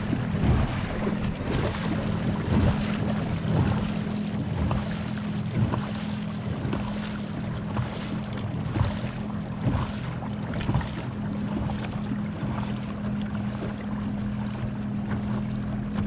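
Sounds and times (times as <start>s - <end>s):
wind on microphone: 0.0s - 7.0s
water wash: 0.0s - 16.0s.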